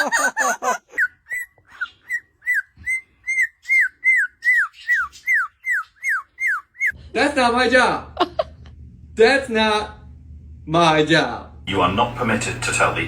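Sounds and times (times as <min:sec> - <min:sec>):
bird chirping: 0:00.8 - 0:07.0.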